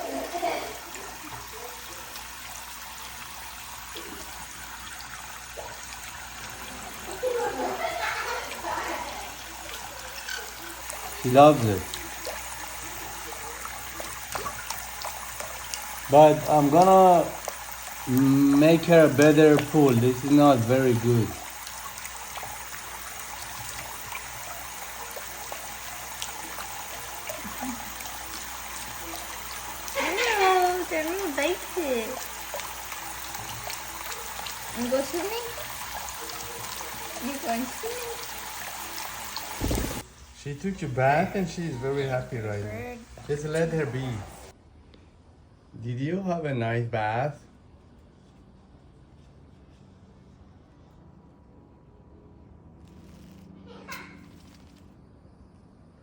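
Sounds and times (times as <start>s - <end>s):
light splashes: 0.0s - 40.2s
water trickling: 0.0s - 44.6s.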